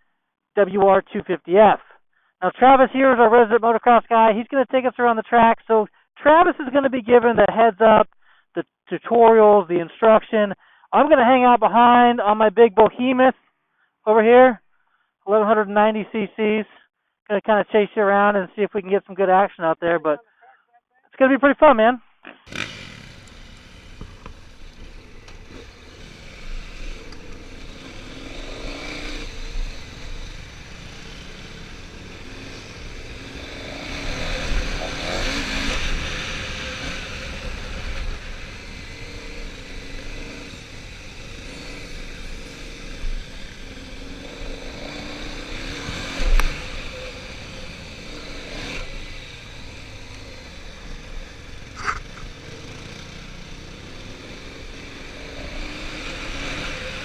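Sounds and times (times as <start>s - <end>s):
dirt bike engines revving: 22.3s - 57.0s.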